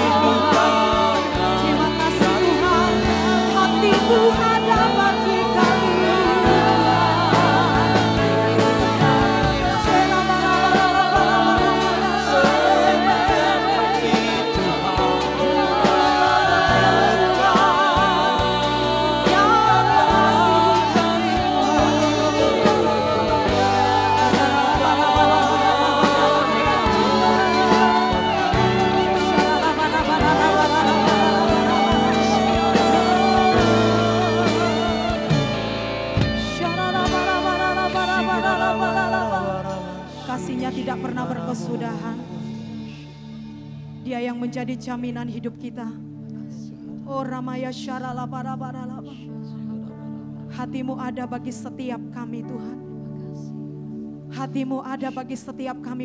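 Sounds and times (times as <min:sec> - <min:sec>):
bass and drum beat: 0:00.0 - 0:38.5
singers sustaining wavering notes: 0:00.0 - 0:40.6
worship band playing: 0:00.0 - 0:45.0.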